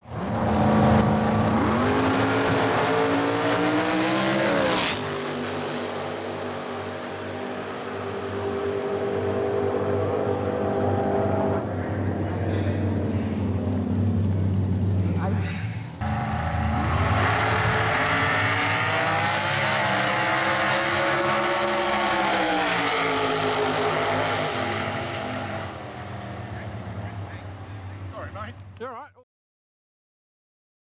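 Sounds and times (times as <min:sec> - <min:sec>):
engine running: 0:00.2 - 0:28.8.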